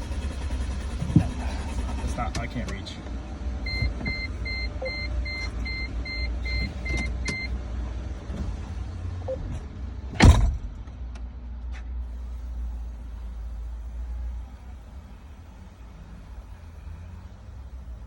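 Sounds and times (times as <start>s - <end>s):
car warning chime beeping: 3.6s - 7.5s
short loud thump: 10.2s - 10.8s.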